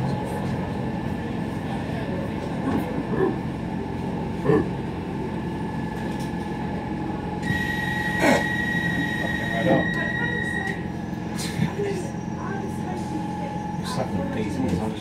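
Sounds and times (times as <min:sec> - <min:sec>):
train wheels rumbling on track: 0:00.0 - 0:15.0
steady high whine: 0:05.2 - 0:14.3.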